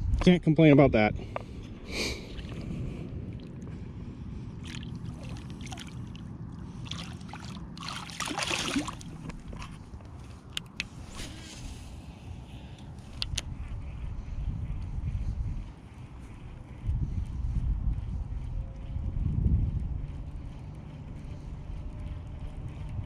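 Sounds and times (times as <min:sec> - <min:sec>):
wind rumbling on microphone: 0:00.0 - 0:23.0
water sloshing: 0:02.2 - 0:03.8, 0:04.6 - 0:10.1
water splash: 0:04.6 - 0:06.2, 0:06.8 - 0:09.7.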